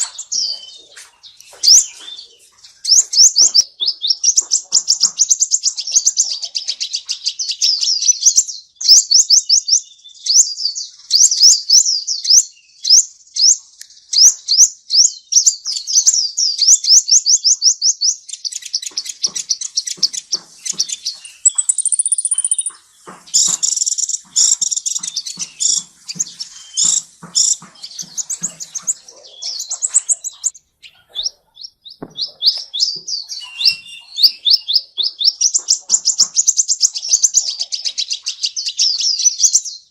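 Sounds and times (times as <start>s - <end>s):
songbird chirping and trilling: 0.0s - 39.9s
faint knocks: 18.9s - 30.5s.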